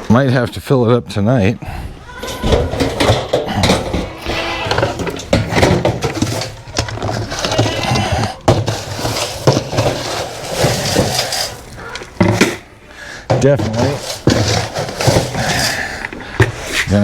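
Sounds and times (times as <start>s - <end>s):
short squeaks: 10.7s - 12.7s.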